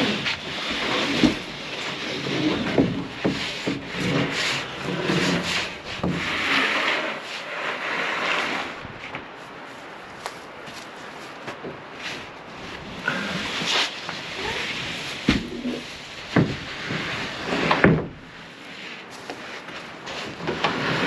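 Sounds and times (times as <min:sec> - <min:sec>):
wooden posts scraping together: 0:00.0 - 0:21.0
wood-on-wood knocks: 0:16.3 - 0:16.7.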